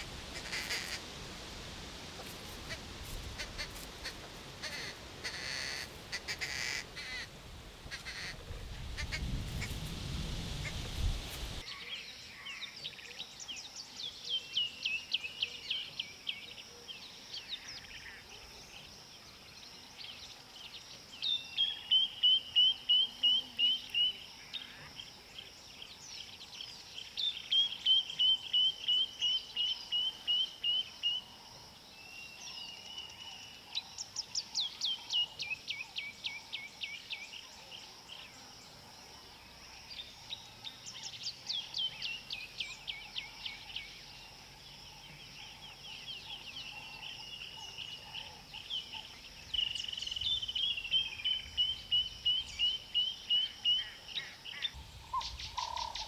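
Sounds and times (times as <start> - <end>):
steady high hiss: 0.0 - 12.4
small bird singing: 19.6 - 31.3, 39.8 - 56.0.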